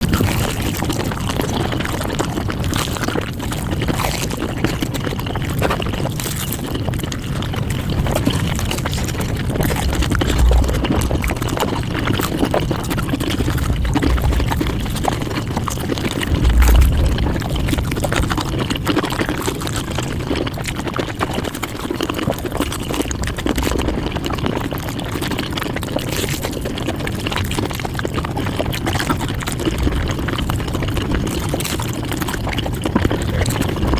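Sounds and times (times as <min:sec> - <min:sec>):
sped-up eating sounds: 0:07.6 - 0:19.2
low thumps: 0:09.5 - 0:11.7, 0:13.3 - 0:19.4.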